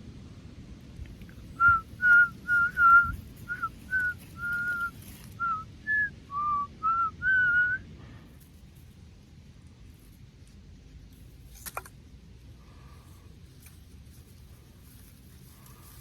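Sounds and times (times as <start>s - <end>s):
person whistling a melody: 1.6s - 7.8s.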